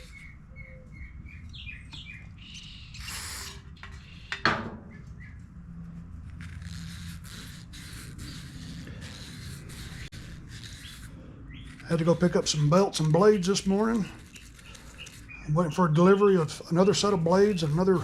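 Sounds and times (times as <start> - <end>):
birds chirping: 0.0 - 5.5, 10.7 - 18.0.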